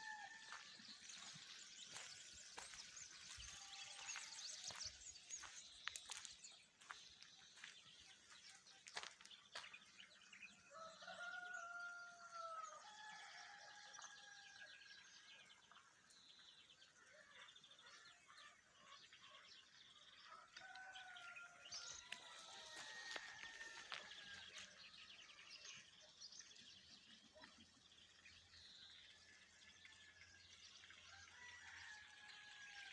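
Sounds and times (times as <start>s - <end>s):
small birds chirping: 0.0s - 11.2s
rooster crowing: 10.7s - 14.0s, 20.4s - 24.7s.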